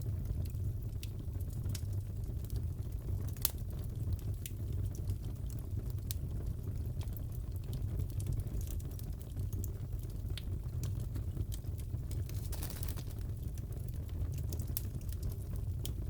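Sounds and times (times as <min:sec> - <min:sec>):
fireplace crackling and popping: 0:00.0 - 0:16.0
low rumble of burning wood: 0:00.0 - 0:16.0.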